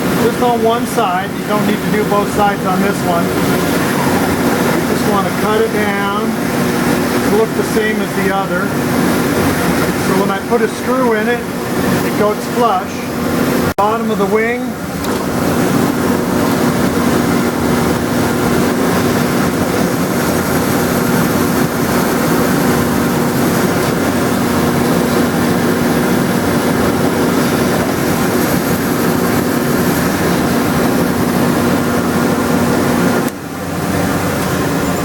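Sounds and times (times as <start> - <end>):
drill press motor humming: 14.8 - 35.0.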